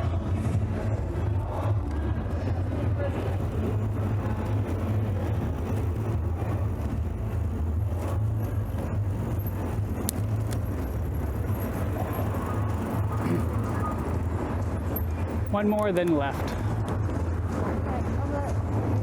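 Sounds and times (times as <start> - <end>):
wind and bicycle tyre noise: 0.0 - 19.0.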